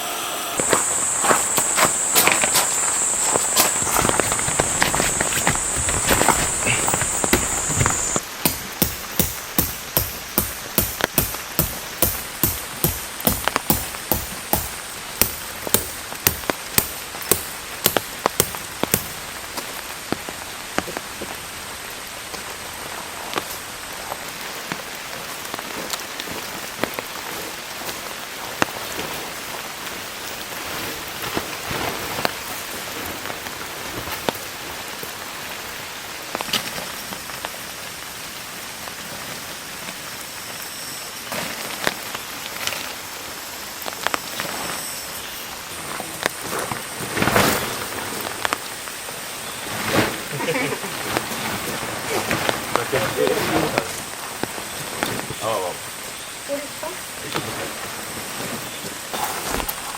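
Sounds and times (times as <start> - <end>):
heavy rain falling: 0.0 - 59.9
sharp knocks: 4.0 - 19.2.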